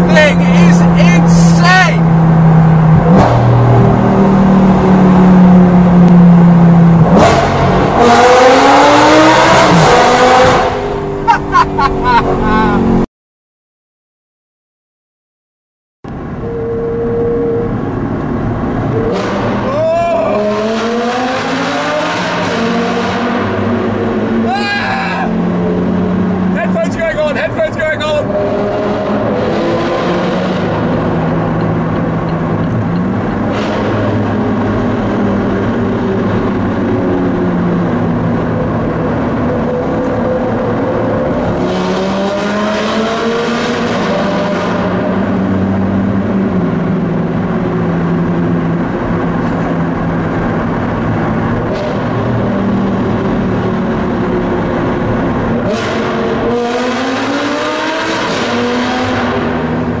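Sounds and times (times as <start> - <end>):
sports car revving: 0.0 - 13.0, 16.1 - 24.6, 25.3 - 60.0
engine drone: 16.1 - 26.6.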